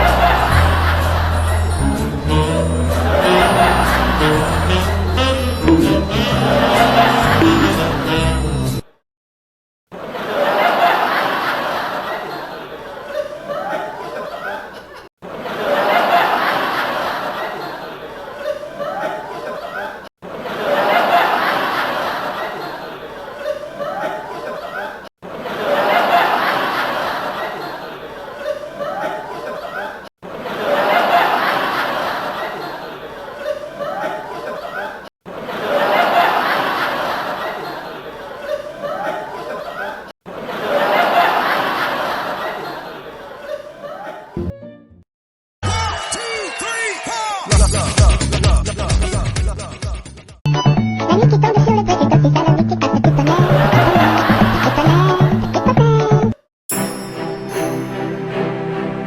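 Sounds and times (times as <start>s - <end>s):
people laughing: 0.0s - 8.4s, 10.0s - 44.5s, 53.2s - 55.8s.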